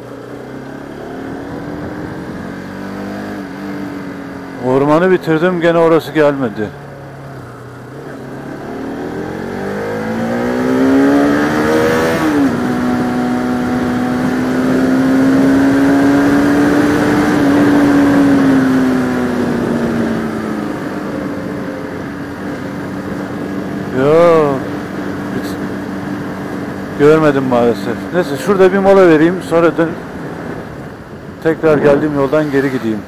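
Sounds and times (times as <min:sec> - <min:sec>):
motorcycle engine accelerating: 0:00.0 - 0:33.0
wind noise: 0:08.9 - 0:23.9.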